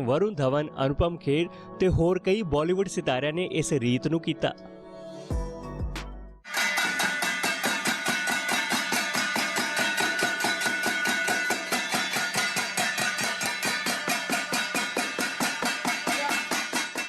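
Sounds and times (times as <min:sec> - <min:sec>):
metal plate beaten with utensil: 0:06.5 - 0:17.0.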